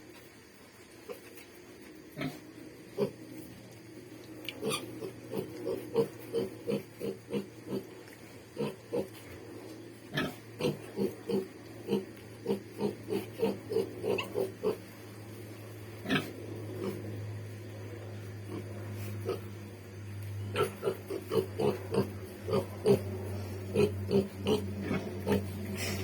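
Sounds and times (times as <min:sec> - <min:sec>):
steady low hum: 0:00.0 - 0:26.0
pig grunting: 0:02.2 - 0:03.4, 0:04.5 - 0:15.0, 0:16.0 - 0:17.2, 0:18.4 - 0:19.7, 0:20.5 - 0:26.0.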